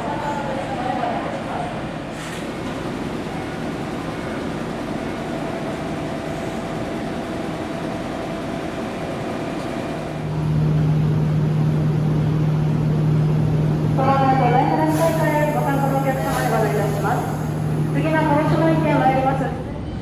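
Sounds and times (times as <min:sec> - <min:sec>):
electric train running noise: 0:10.0 - 0:19.9.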